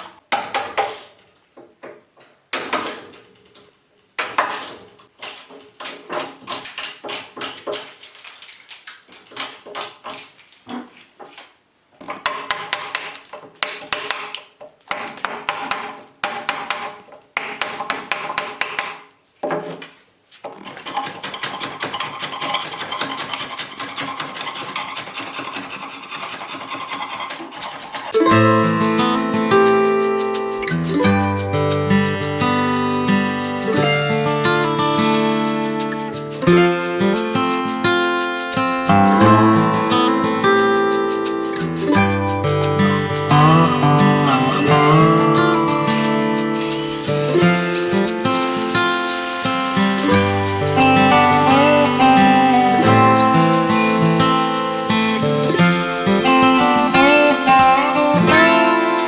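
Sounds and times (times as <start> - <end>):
steady rubbing on wood: 20.6 - 28.2.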